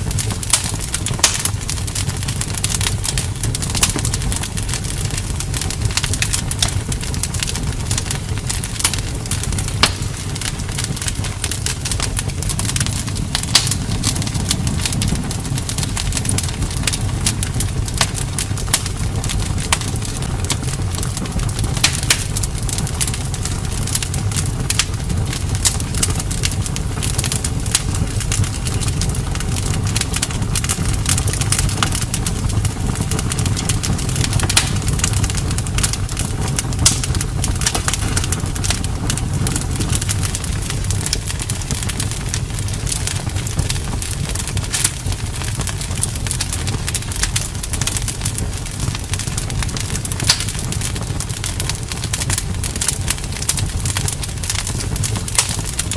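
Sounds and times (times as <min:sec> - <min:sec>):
campfire wood crackling and popping: 0:00.0 - 0:55.9
steady low rumble: 0:00.0 - 0:55.9.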